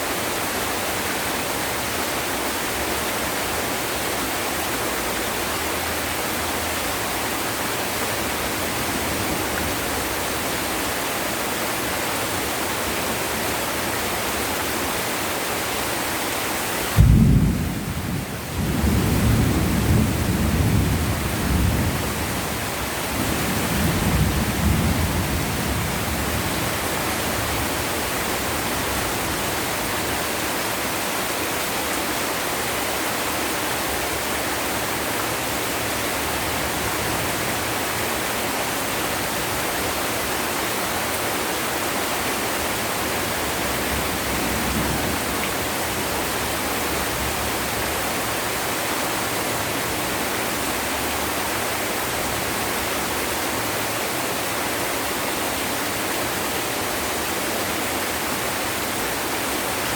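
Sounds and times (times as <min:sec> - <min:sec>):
heavy rain: 0:00.0 - 0:59.9
thunder clap and rumbling: 0:17.0 - 0:22.4.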